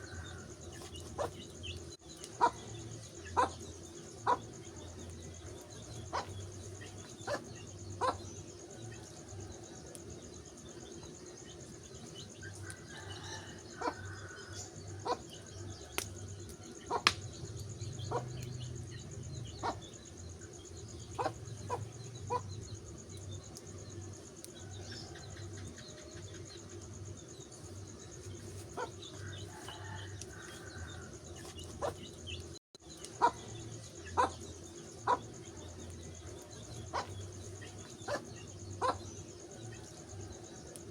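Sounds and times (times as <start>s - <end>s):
wood fire crackling and popping: 15.8s - 17.7s.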